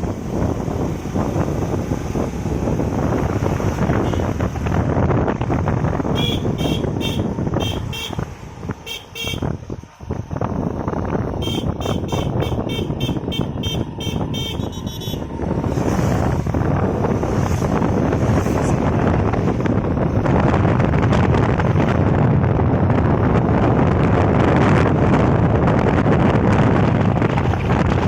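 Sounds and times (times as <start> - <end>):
wind and road rush on motorcycle: 0.0 - 28.0
short high-pitched beeps: 11.4 - 15.2.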